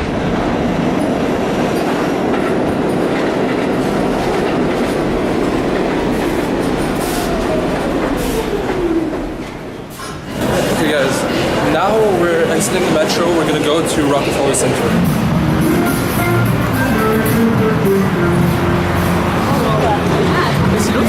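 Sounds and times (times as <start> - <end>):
subway train rumbling on rails: 0.0 - 21.0
train whine falling in pitch: 3.8 - 9.8.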